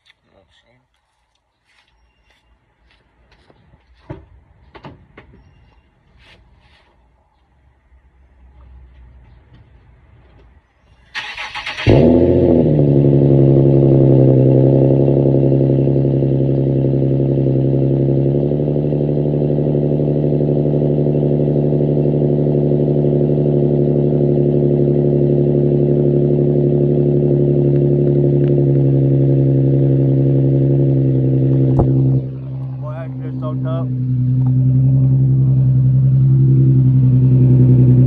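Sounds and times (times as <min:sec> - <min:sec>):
loud car engine idling: 0:11.2 - 0:38.0.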